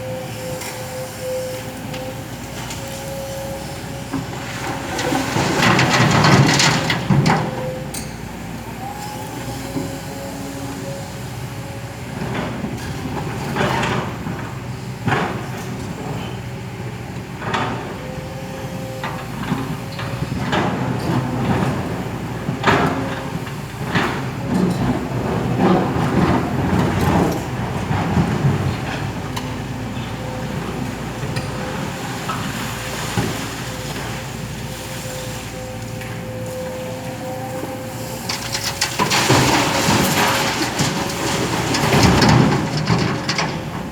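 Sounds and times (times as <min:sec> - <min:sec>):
excavator engine running: 0:00.0 - 0:43.9
rushing scraping noises: 0:37.6 - 0:43.9.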